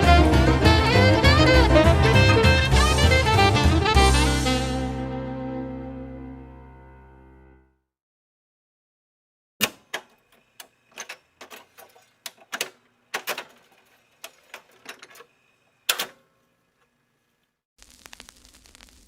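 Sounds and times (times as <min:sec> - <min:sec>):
sharp clicks and knocks: 0:09.6 - 0:15.3.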